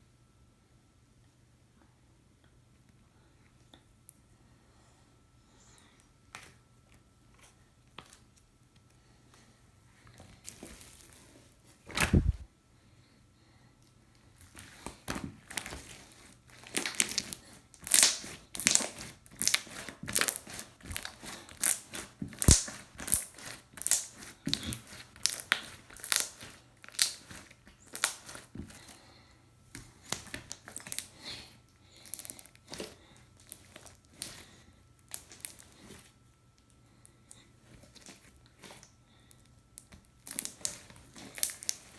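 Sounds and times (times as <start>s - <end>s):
slime popping and crackling: 16.6s - 28.5s, 30.1s - 31.1s, 39.8s - 41.9s.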